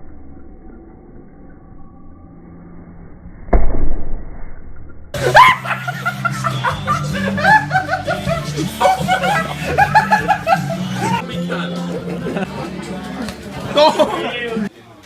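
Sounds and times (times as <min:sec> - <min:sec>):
loud distorted blast: 0:02.8 - 0:04.7
music with voices: 0:05.2 - 0:15.0.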